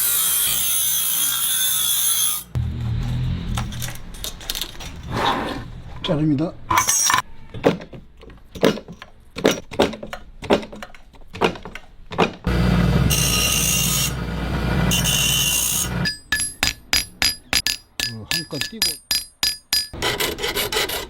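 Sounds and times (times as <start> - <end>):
power tool running: 12.5 - 16.1
hand tool strikes: 15.2 - 20.0
ringing metal clicks: 16.0 - 20.0.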